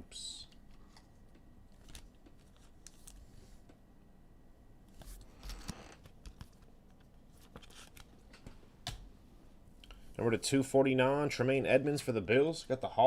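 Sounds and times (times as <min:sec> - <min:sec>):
cards rustling: 0:00.7 - 0:03.7, 0:05.0 - 0:08.5.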